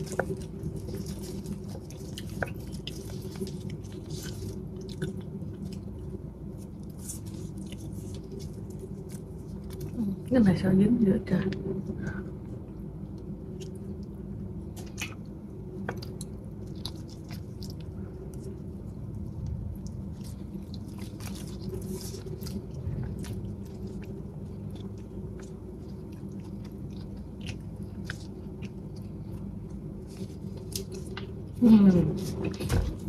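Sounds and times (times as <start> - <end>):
biting and chewing sticky food: 0.0 - 10.3, 12.4 - 31.6
steady low hum: 0.0 - 33.0.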